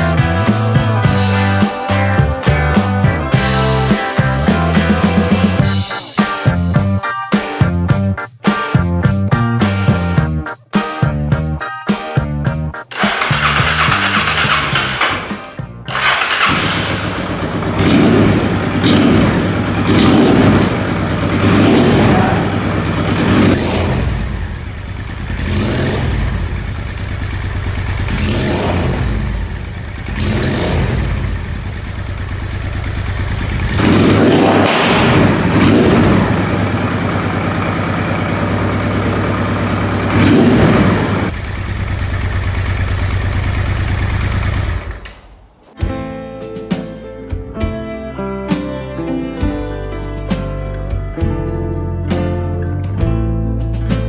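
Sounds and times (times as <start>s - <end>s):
motorcycle engine throttle blips: 12.9s - 45.4s.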